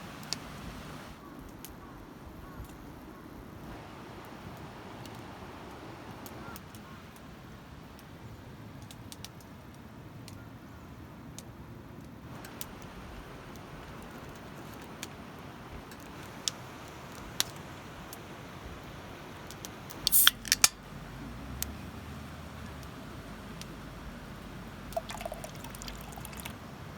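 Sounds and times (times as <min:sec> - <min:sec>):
clicks of small objects handled: 0:20.1 - 0:20.8.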